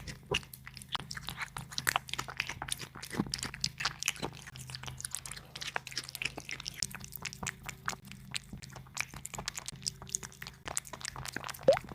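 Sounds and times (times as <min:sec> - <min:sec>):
cat chewing meat: 0:00.0 - 0:11.9.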